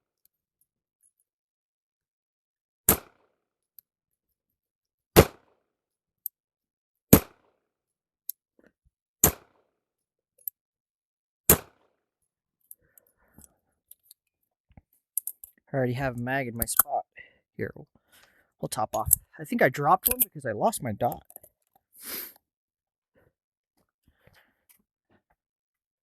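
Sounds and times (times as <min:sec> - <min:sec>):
pistol shots: 0:02.9 - 0:03.2, 0:05.2 - 0:05.4, 0:07.1 - 0:07.4, 0:11.5 - 0:11.8.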